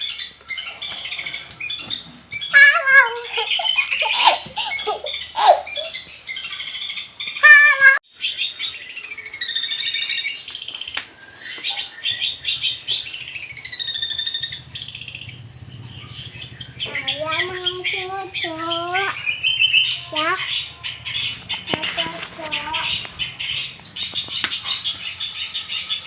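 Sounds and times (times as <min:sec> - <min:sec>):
shrike singing: 0:00.0 - 0:26.0.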